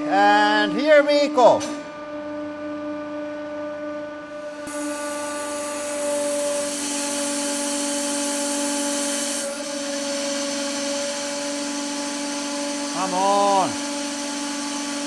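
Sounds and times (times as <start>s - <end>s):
pump motor whine: 0.0s - 15.0s
hydraulic hissing rush: 4.7s - 15.0s.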